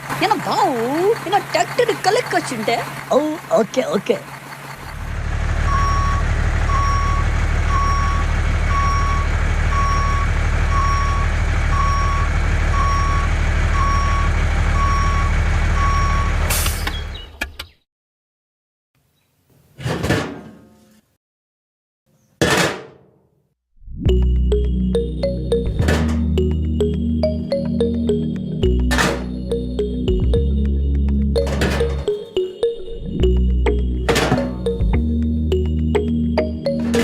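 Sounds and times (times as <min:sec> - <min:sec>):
truck engine running: 0:00.0 - 0:17.2, 0:24.1 - 0:37.0
reversing beeper: 0:05.5 - 0:16.9.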